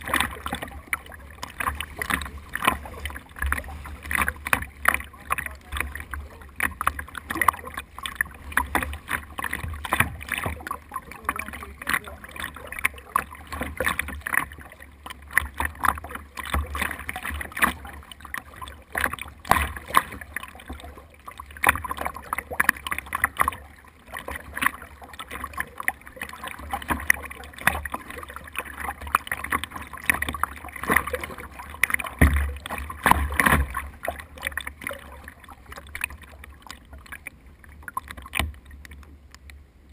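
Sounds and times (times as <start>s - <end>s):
low rumble of water and wind: 0.0s - 39.9s
water slapping against boat hull: 0.0s - 39.9s.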